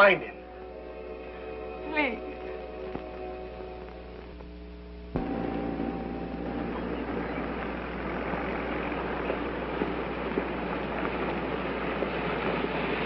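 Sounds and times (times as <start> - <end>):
constant hiss: 0.0 - 13.0
low hum: 0.3 - 13.0
held music chord: 5.2 - 9.4
car engine running: 5.2 - 12.0.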